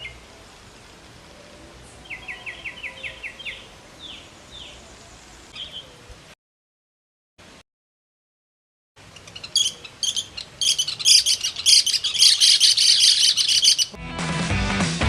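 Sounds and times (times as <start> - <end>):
birds chirping: 0.0 - 6.2, 9.0 - 14.0
music: 14.0 - 15.0.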